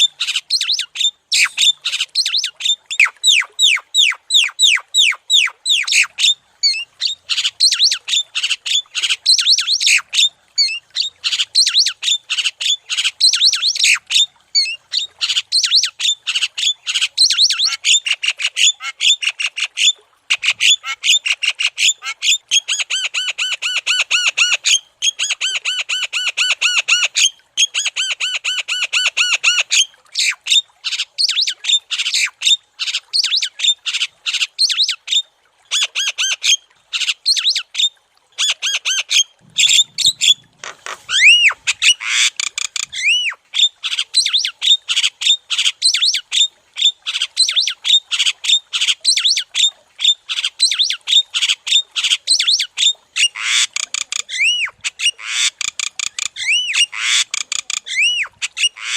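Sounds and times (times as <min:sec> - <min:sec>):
myna bird singing: 0:39.5 - 0:43.3.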